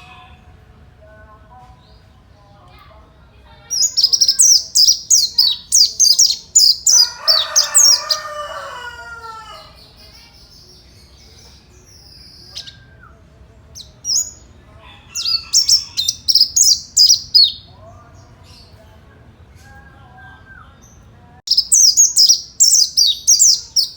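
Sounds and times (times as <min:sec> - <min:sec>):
bird singing high chirps: 0:03.7 - 0:14.5, 0:15.1 - 0:17.7, 0:19.7 - 0:23.9.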